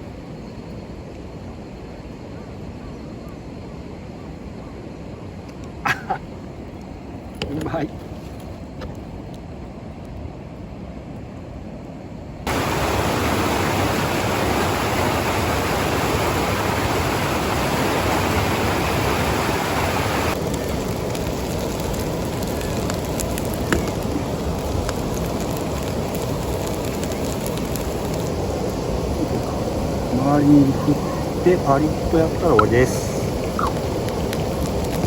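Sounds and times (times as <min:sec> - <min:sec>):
faint hiss: 0:12.5 - 0:35.0
dumplings sizzling in a frying pan: 0:20.2 - 0:35.0.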